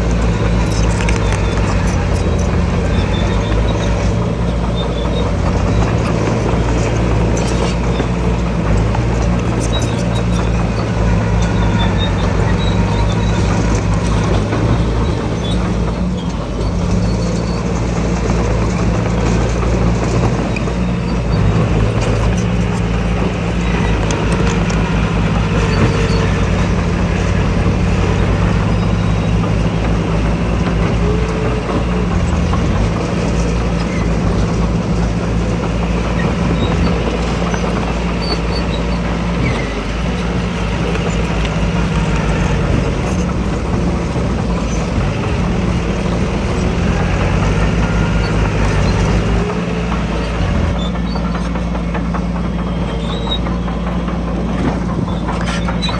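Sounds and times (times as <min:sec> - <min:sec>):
heavy machinery diesel engines: 0:00.0 - 0:55.9.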